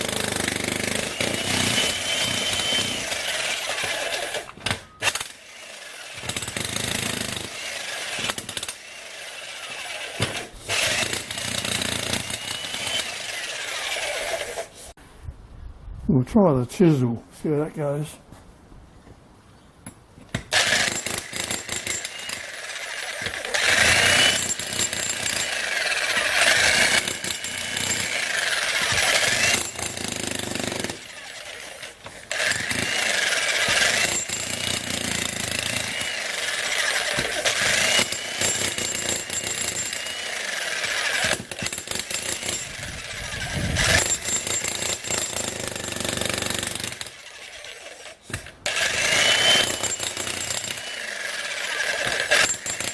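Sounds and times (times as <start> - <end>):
jackhammer breaking concrete: 6.1 - 8.8, 9.7 - 13.1, 20.5 - 31.2, 32.2 - 47.2, 48.7 - 52.9.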